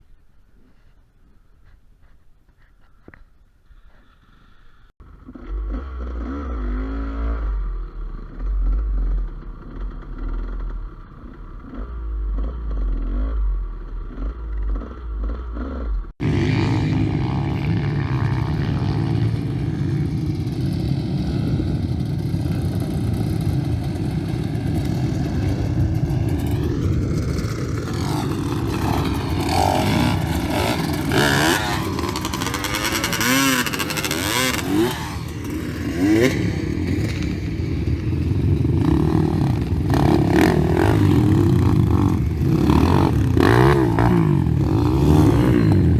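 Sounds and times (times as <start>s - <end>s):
motorcycle engine revving: 4.9s - 45.9s
clatter: 7.8s - 16.1s.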